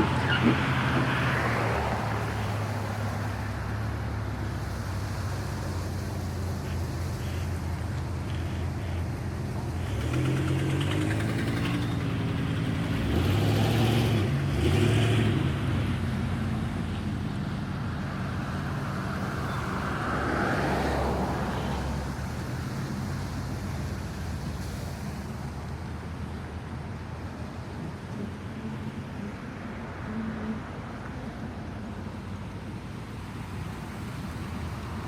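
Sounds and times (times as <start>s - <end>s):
vehicle engine pulling away: 0.0s - 25.6s
vehicle passing with tyre noise: 0.0s - 35.0s.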